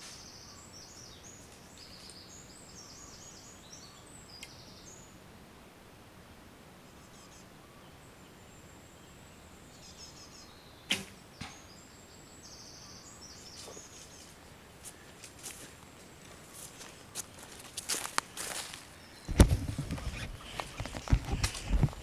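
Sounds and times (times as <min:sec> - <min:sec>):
faint birds chirping: 0:00.0 - 0:22.0
arrow thudding into foam target: 0:10.9 - 0:11.6, 0:19.3 - 0:22.0
bow string snap: 0:10.9 - 0:11.6.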